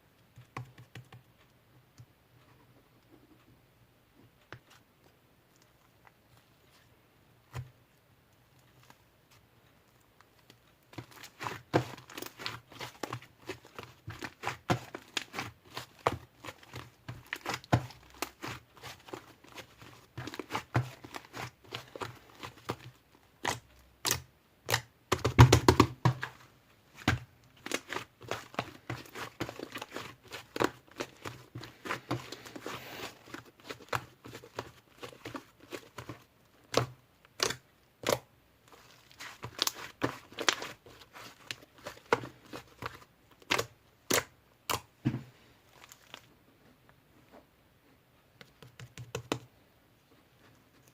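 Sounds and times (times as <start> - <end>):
slime squished by hand: 10.9 - 44.9.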